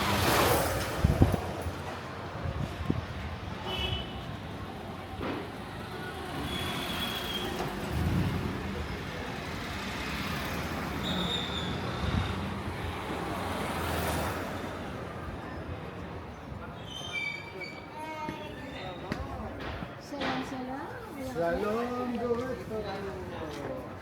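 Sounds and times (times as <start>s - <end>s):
passing vehicle engines: 0.0s - 16.8s
roadway din: 0.0s - 24.0s.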